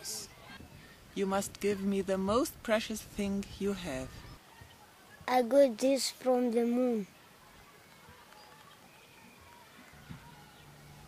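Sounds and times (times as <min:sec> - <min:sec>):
faint bird chirps: 0:07.0 - 0:11.0.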